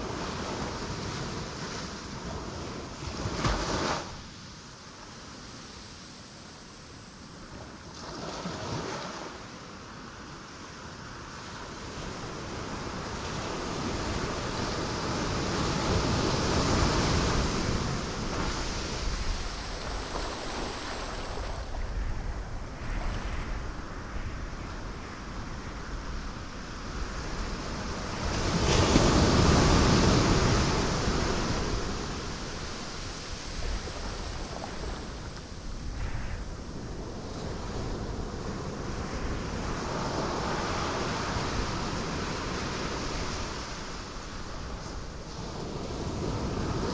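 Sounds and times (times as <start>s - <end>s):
ocean waves breaking on rocks: 12.4s - 46.9s.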